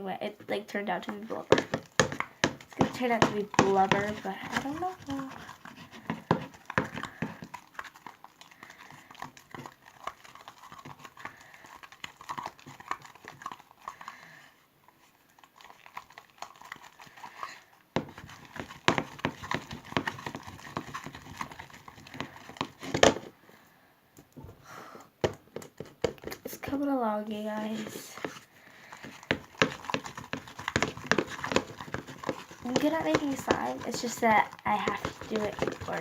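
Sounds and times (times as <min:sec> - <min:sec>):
slime squelching and clicking: 0:00.8 - 0:23.2, 0:27.6 - 0:36.0.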